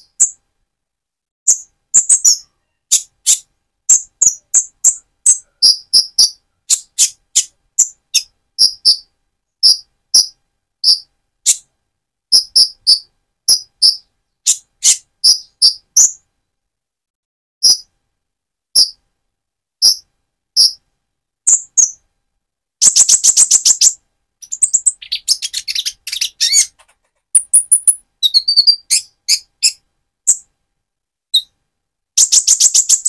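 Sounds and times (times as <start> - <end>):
bird chirping high-pitched: 0.0 - 0.4, 1.5 - 11.7, 12.3 - 16.2, 17.6 - 17.9, 18.8 - 19.0, 19.8 - 20.8, 21.5 - 22.0, 22.8 - 30.5, 31.3 - 31.6, 32.2 - 33.0.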